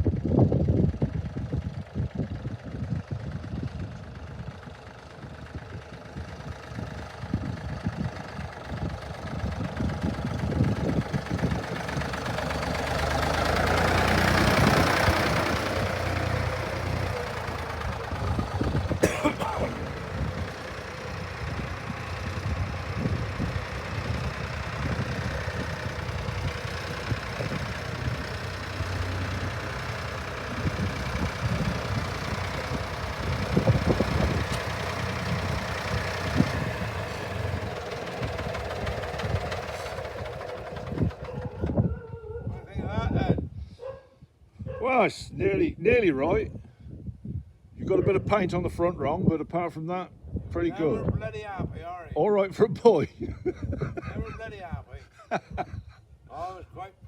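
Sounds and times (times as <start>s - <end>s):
tractor engine running: 0.0s - 43.5s.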